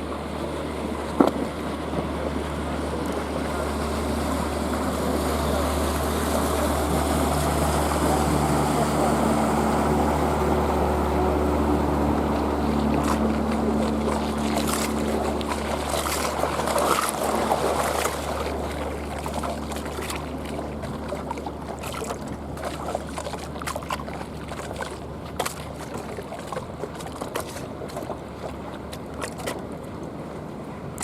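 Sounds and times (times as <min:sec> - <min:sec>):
motorboat engine: 0:00.0 - 0:31.0
water lapping against bank: 0:00.0 - 0:31.0.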